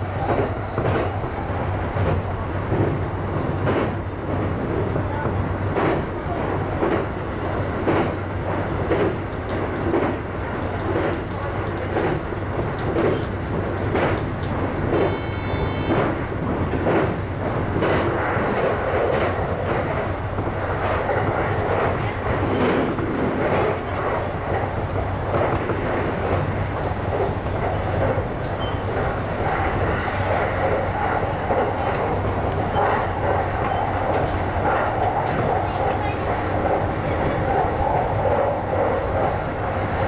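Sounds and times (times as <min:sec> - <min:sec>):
short high beep: 0:15.0 - 0:15.9.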